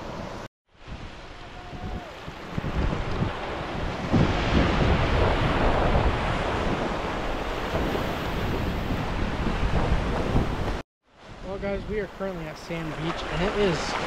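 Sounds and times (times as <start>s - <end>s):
wind buffeting microphone: 0.8s - 12.2s
small waves washing on sand: 12.1s - 14.0s.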